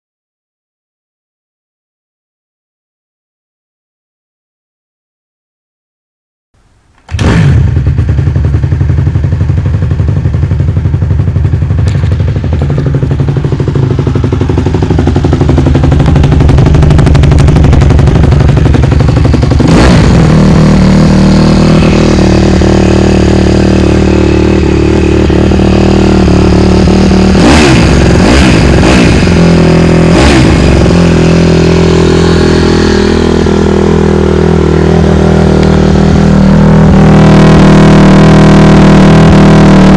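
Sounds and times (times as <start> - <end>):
motorcycle engine starting and running: 6.9 - 39.9
engine throttle blips: 11.5 - 39.9.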